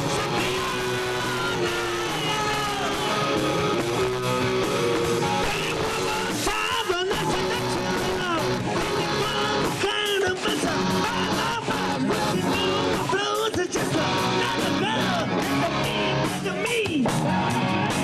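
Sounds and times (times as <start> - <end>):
shouted singing: 0.0 - 17.0
live punk rock band: 0.0 - 18.0.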